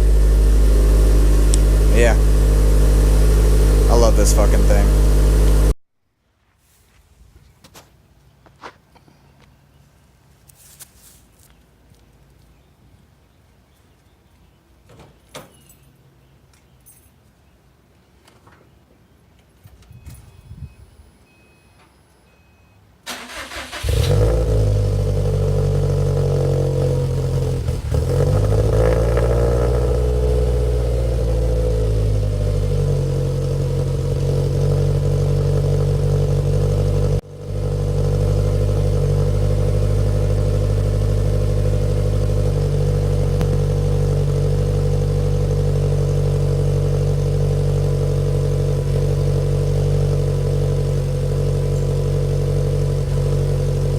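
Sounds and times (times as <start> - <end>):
car engine idling: 0.0 - 5.8, 23.1 - 53.9.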